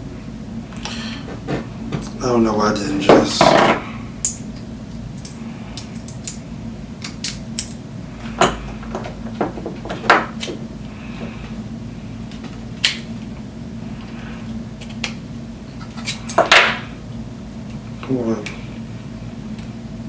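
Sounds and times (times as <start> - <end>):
clicks and knocks of hard parts: 8.4 - 10.7.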